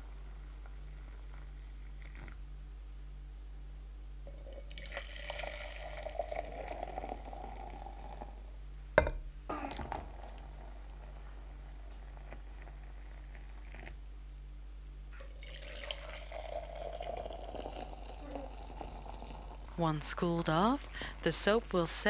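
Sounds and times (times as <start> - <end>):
liquid pouring into container: 4.3 - 8.2, 15.2 - 19.7.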